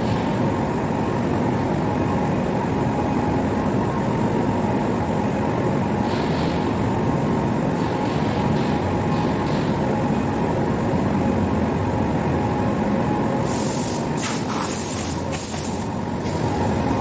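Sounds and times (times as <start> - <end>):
short hissing blasts: 13.4 - 15.9.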